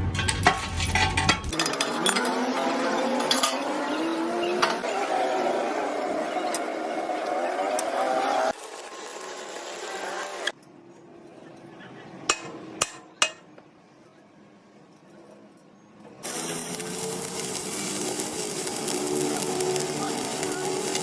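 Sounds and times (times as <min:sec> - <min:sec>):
rough machine noise: 0:16.2 - 0:21.0.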